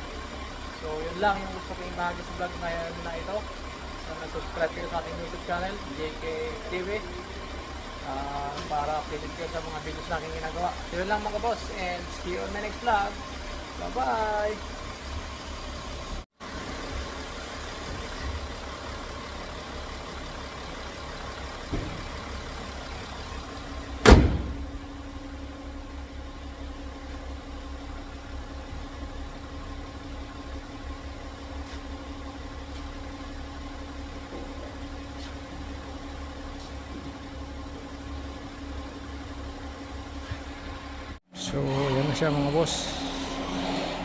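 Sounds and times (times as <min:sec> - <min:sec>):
diesel engine idling: 0:00.0 - 0:44.0
loud thump: 0:21.7 - 0:22.1, 0:24.0 - 0:24.8.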